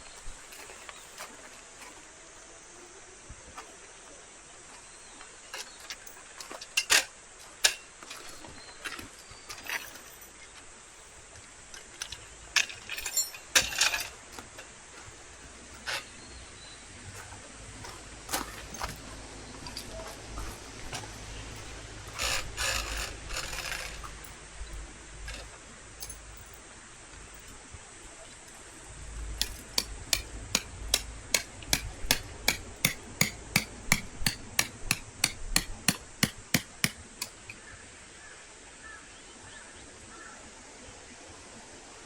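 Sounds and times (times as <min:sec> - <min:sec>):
brief rustle: 0:17.1 - 0:26.3.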